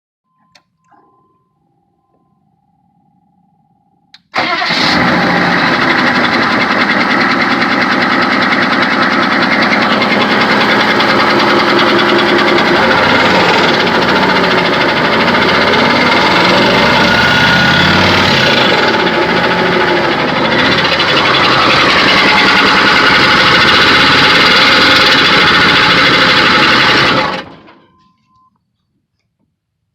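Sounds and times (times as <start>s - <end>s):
diesel engine running: 3.8s - 27.8s
engine knocking: 4.4s - 27.7s
engine squeal: 12.5s - 25.3s.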